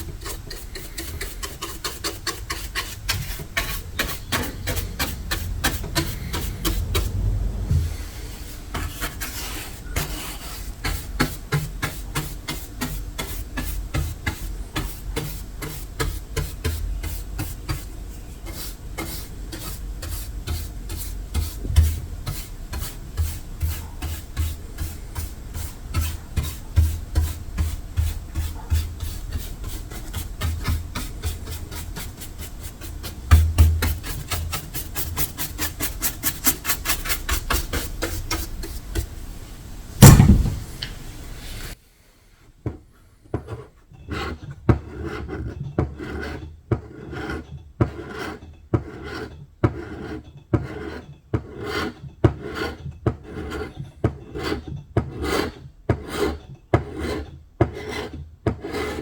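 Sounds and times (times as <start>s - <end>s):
sanding strokes rasping on paint: 0.0s - 7.2s, 8.0s - 39.1s
soft low thuds: 6.5s - 8.1s, 40.0s - 40.9s.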